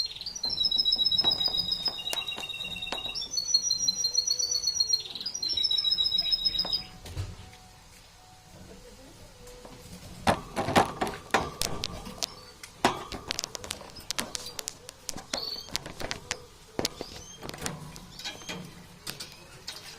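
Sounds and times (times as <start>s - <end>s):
high bird chirps: 0.0s - 7.0s, 11.9s - 19.6s
birds clicking and tapping: 0.0s - 7.4s, 9.4s - 19.9s.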